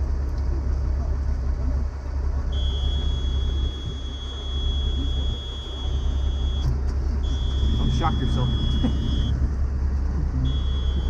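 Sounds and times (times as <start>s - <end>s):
engine rumbling: 0.0s - 11.0s
high-pitched warning buzzer: 2.6s - 6.6s, 7.3s - 9.3s, 10.5s - 11.0s.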